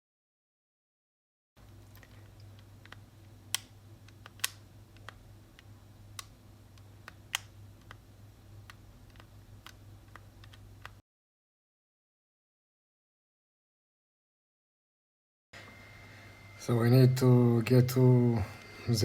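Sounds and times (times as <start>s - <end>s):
low steady hum: 1.6s - 11.0s, 15.6s - 19.0s.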